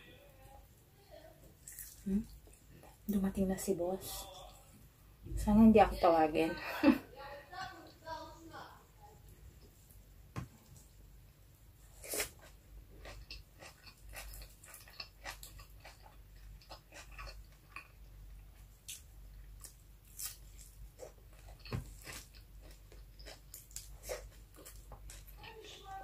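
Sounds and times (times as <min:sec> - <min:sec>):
person chewing food: 0:01.6 - 0:03.1, 0:11.8 - 0:25.4.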